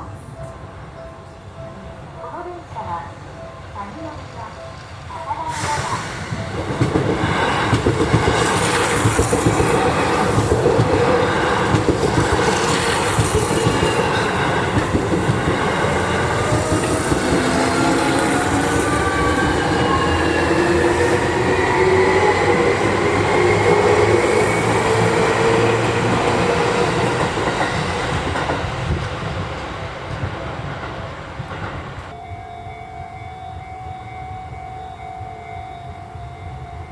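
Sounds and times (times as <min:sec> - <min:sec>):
train wheels clacking over rail joints: 0:06.4 - 0:32.1.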